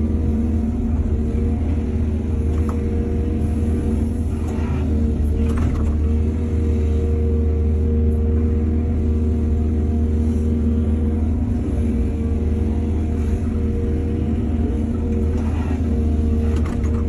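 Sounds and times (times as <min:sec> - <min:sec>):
excavator diesel engine rumbling: 0:00.0 - 0:17.0.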